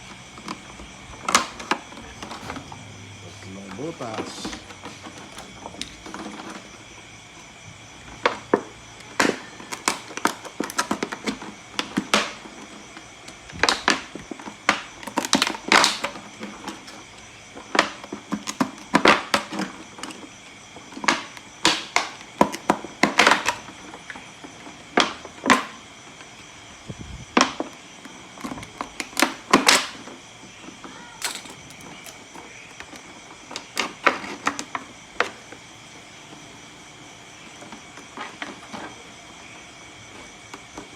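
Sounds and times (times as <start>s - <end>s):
plastic bottle clicking and crackling: 1.2s - 2.6s, 9.2s - 12.4s, 14.7s - 16.8s, 17.8s - 19.7s, 21.0s - 23.7s, 27.4s - 30.0s, 31.2s - 35.4s.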